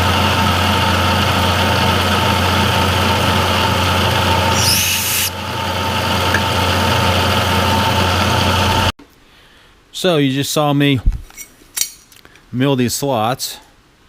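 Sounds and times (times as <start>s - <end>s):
milling machine running: 0.0s - 8.9s
high-pitched hiss and squeal: 4.5s - 5.4s.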